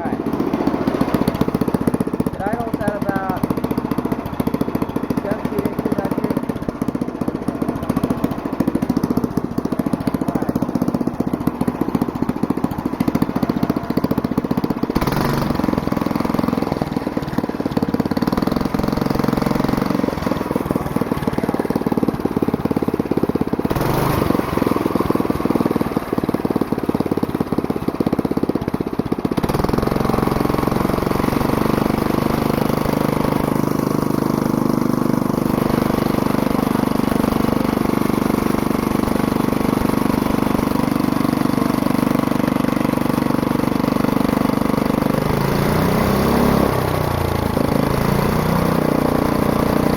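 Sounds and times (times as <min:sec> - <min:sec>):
go-kart engine running: 0:00.0 - 0:49.9.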